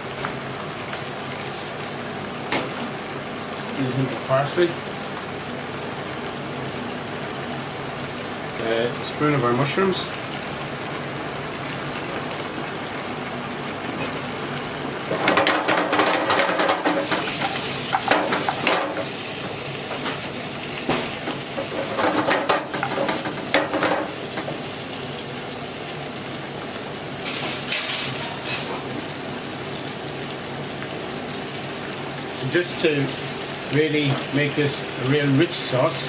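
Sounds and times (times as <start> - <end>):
sauce bubbling in a pan: 0.0 - 36.0
spoon stirring and scraping pan: 15.1 - 19.1, 21.3 - 24.6.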